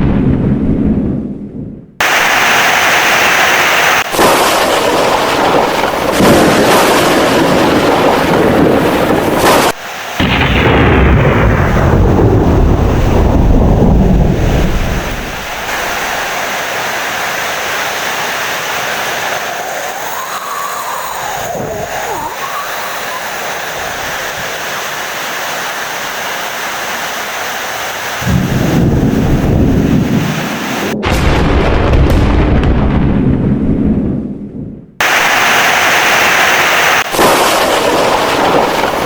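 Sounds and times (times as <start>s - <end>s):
low thunder rumble: 0.0s - 2.0s, 4.2s - 9.5s, 10.2s - 16.4s, 28.2s - 35.0s, 37.2s - 39.0s
heavy rain: 2.0s - 32.4s, 35.0s - 39.0s.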